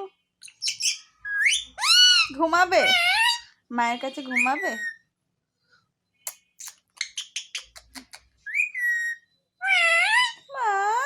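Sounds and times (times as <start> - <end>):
parakeet chirping and calling: 0.4 - 5.1, 6.4 - 10.5.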